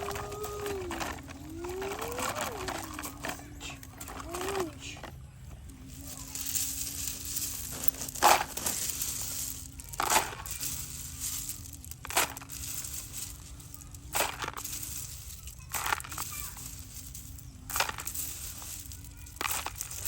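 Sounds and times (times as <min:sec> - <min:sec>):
loud crunching: 0:00.0 - 0:20.0.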